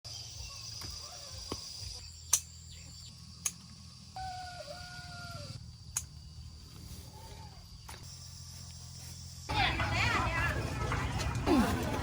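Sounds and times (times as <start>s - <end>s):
high insect drone: 0.1s - 9.5s
rooster crowing: 4.2s - 5.6s.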